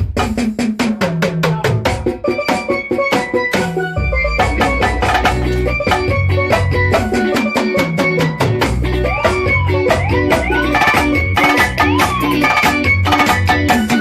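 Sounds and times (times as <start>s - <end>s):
drum and percussion strokes: 0.0s - 14.0s
guitar: 2.1s - 14.0s
sliding bending notes: 2.8s - 13.9s
bass: 3.0s - 14.0s.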